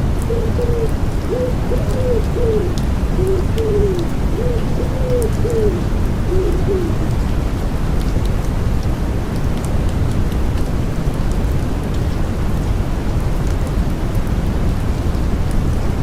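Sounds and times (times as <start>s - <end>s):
white noise and rain: 0.0s - 16.0s
wood pigeon cooing: 0.1s - 7.1s
raindrop ticks: 0.1s - 15.7s.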